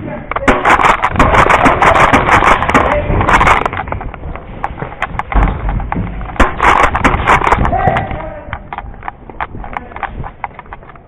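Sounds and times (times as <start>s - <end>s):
airsoft guns firing: 0.3s - 3.8s, 6.4s - 8.0s
clatter: 0.3s - 11.0s.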